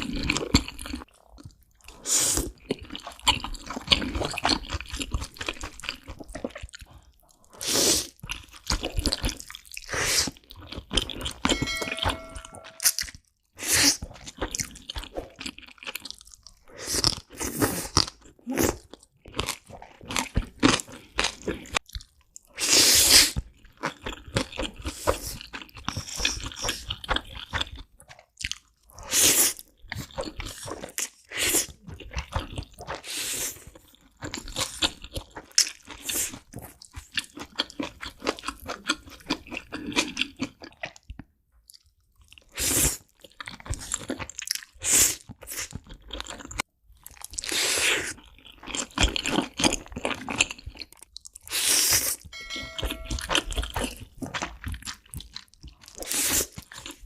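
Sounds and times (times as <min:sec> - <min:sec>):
person chewing crunchy food: 0:00.0 - 0:11.6, 0:12.7 - 0:57.0.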